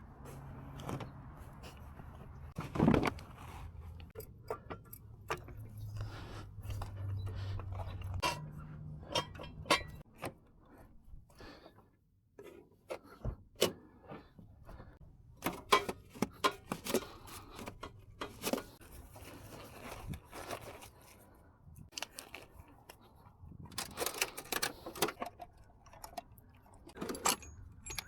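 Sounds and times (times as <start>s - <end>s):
tools clicking and knocking: 4.0s - 6.0s, 6.6s - 10.3s, 23.7s - 28.0s.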